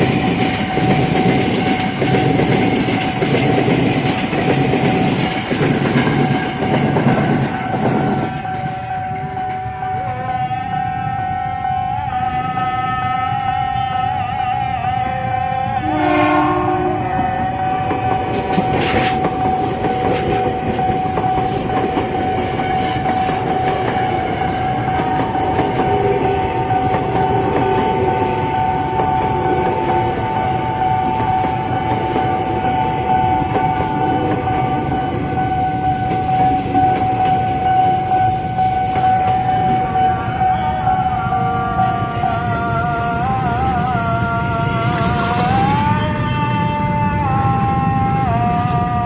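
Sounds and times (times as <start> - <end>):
train wheels clattering over rail joints: 0.0 - 8.8, 17.9 - 28.0
steady high tone: 6.0 - 49.0.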